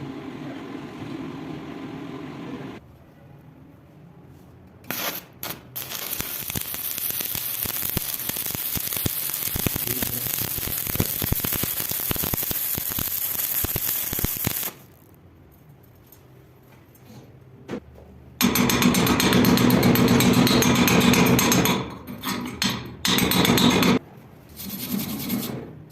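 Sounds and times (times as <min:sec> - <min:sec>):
welding electrode striking: 0:04.8 - 0:15.1, 0:18.4 - 0:24.0
welding arc crackling: 0:04.9 - 0:15.1.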